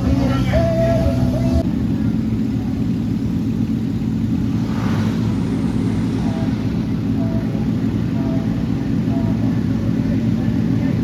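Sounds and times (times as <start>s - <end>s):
vehicle engine running: 0.0s - 11.0s
brief rush of noise: 4.6s - 7.2s.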